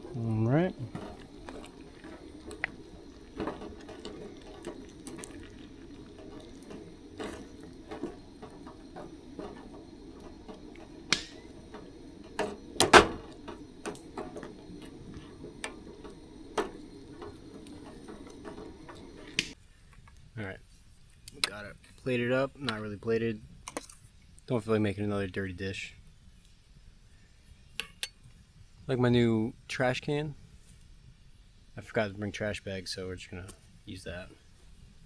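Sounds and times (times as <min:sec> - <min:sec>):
food simmering with bubbling: 0:00.0 - 0:19.6.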